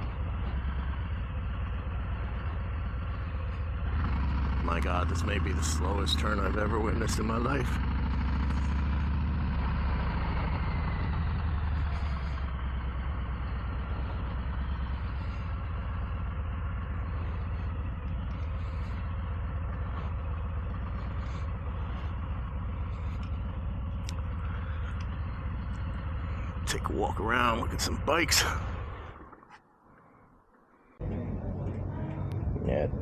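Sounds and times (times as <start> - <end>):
motorcycle engine rumbling: 0.0 - 29.6, 30.4 - 33.0.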